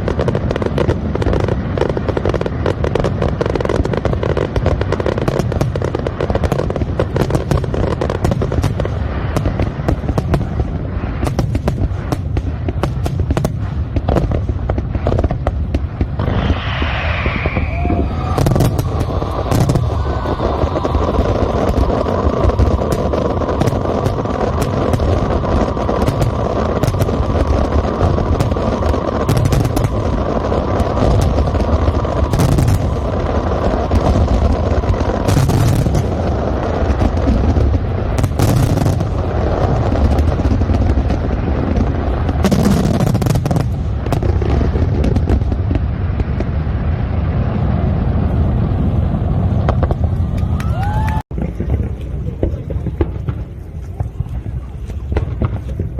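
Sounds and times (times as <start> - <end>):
fireworks booms and crackling: 0.0 - 55.9
low rumble: 13.5 - 55.9
rising firework whistle: 14.7 - 51.3.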